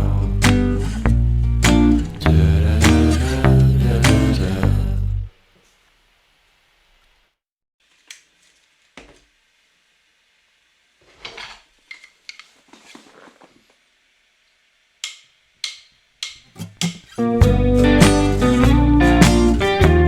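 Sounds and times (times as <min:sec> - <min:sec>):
scraping and rustling: 0:11.0 - 0:13.8
sharp clicks and taps: 0:15.0 - 0:17.1.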